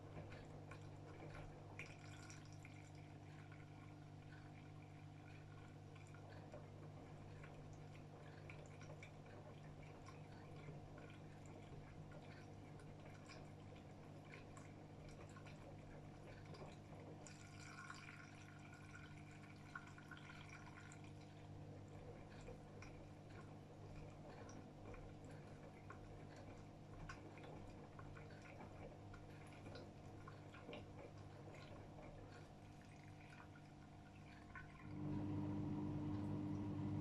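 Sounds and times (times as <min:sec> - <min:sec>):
water sloshing in washing machine: 0:00.0 - 0:37.0
low hum: 0:34.8 - 0:37.0.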